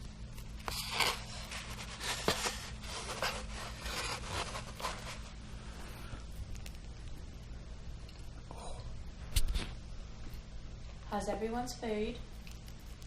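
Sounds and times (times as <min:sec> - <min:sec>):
rustling and scraping handling noises: 0:00.0 - 0:06.9
low steady hum: 0:00.0 - 0:13.0.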